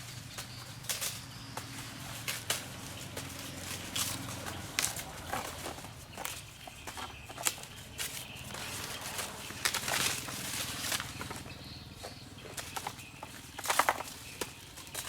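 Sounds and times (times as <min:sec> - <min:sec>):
corn ears snapping off stalks: 0:00.0 - 0:11.6, 0:12.4 - 0:15.0
dry corn plants rustling: 0:00.0 - 0:15.0.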